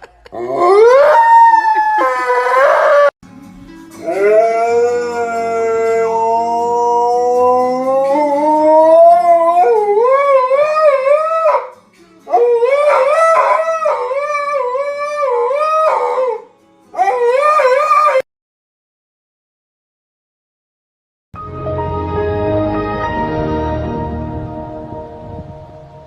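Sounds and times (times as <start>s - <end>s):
dog howling: 0.4s - 3.1s, 4.0s - 11.7s, 12.3s - 18.3s.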